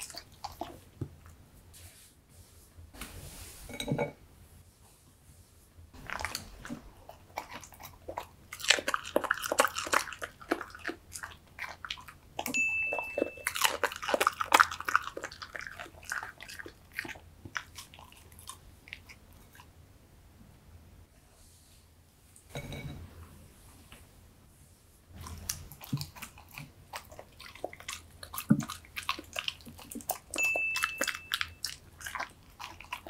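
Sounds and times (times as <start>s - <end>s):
dog chewing and crunching: 0.0s - 1.3s, 6.0s - 19.7s, 25.2s - 33.0s
short steady beep: 12.6s - 13.4s, 30.4s - 31.6s.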